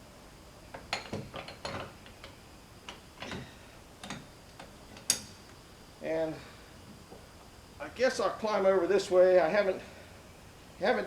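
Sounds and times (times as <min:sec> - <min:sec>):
metal parts clicking and knocking: 0:00.7 - 0:05.3.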